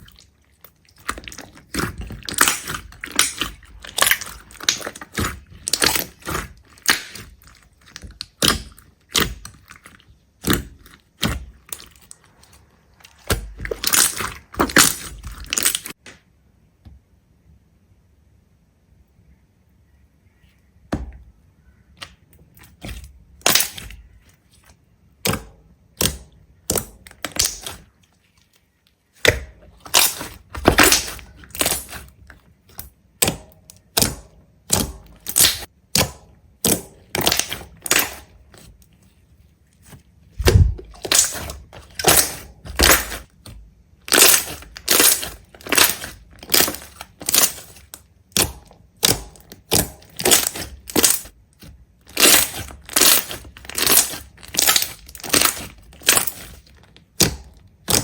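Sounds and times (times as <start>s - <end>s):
crisp crunches: 0.0s - 16.0s, 26.8s - 32.9s, 36.6s - 58.0s.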